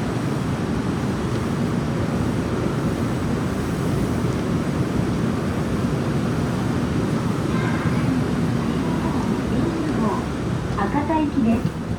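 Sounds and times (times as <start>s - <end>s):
train wheels rumbling: 5.4s - 11.9s.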